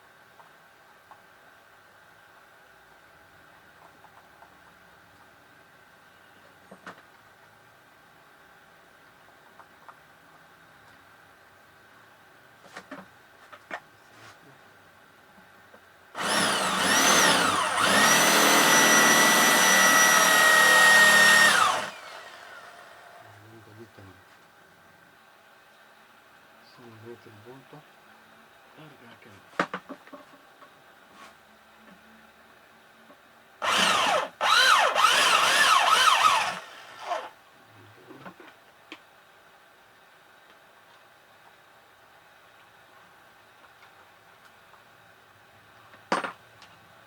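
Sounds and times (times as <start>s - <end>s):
electric drill drilling out rivet: 16.2s - 23.1s, 33.6s - 37.4s.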